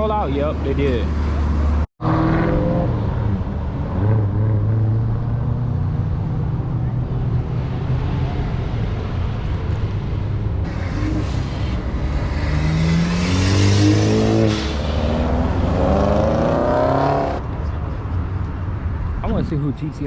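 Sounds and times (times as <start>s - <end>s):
car engine revving and accelerating: 1.6s - 8.4s, 10.7s - 17.4s.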